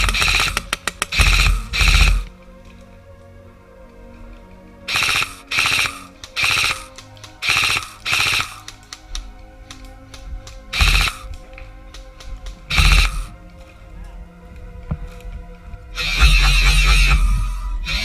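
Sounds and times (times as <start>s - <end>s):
background music: 0.0s - 18.0s
airsoft rifle bursts: 4.9s - 9.2s, 10.7s - 11.3s.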